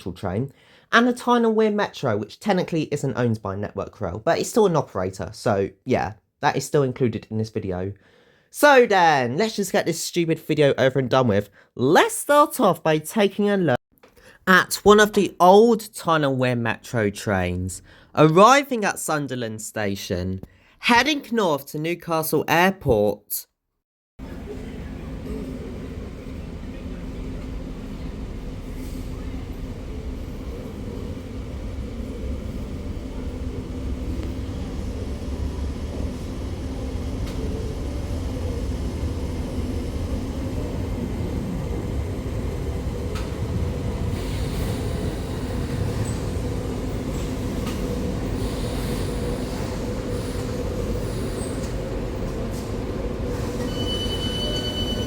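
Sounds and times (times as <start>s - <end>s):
squealing train wheels: 47.1s - 51.9s, 53.3s - 55.0s
steady high tone: 53.4s - 55.0s.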